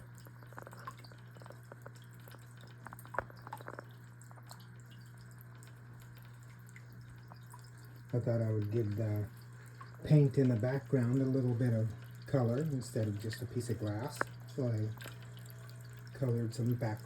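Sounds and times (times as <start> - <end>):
steady low hum: 0.0 - 17.0
water trickling and dripping: 0.0 - 17.0.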